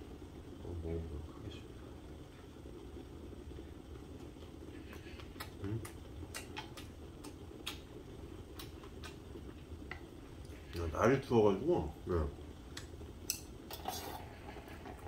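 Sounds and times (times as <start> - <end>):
person chewing with wet smacks: 4.2 - 10.0.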